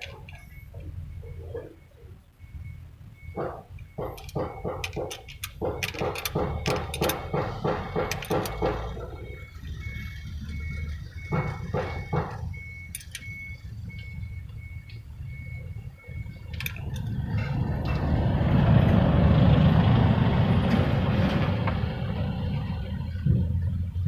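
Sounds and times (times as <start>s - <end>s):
starter cranking diesel engine: 3.2s - 24.0s
short high beeps: 9.1s - 16.5s.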